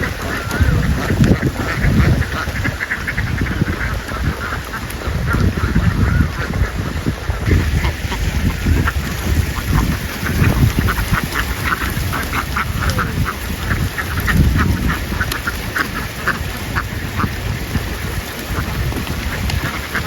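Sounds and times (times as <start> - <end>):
ducks quacking: 0.0 - 20.0.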